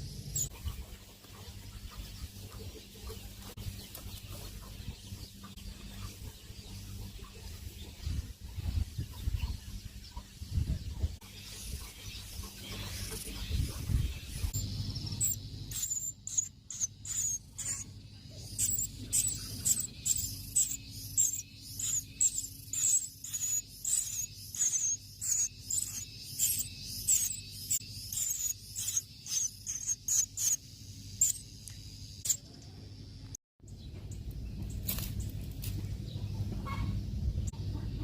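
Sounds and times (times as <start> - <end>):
baby bird begging cheeps: 15.2 - 17.8.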